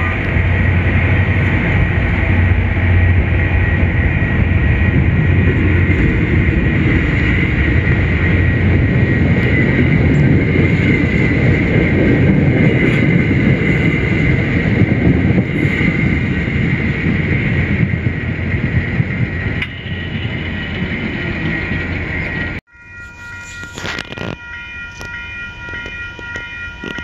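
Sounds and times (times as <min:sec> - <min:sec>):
train wheels rumbling on rails: 0:00.0 - 0:27.0
high ringing tone: 0:19.5 - 0:27.0.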